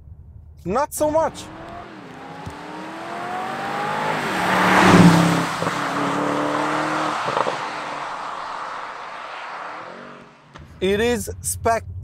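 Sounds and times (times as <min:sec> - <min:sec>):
exhaust crackle: 0:01.2 - 0:11.0
car engine accelerating past: 0:01.3 - 0:10.8.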